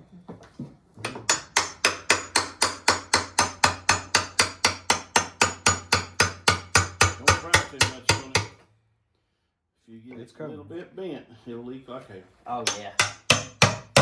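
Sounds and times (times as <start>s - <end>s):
hammer striking metal: 1.0s - 8.6s, 12.6s - 14.0s.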